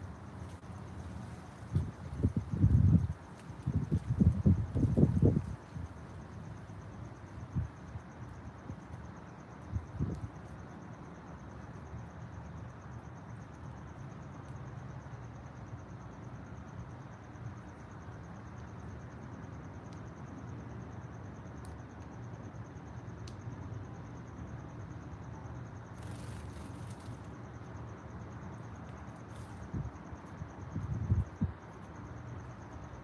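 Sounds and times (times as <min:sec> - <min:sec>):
insect trilling: 0:25.9 - 0:27.3.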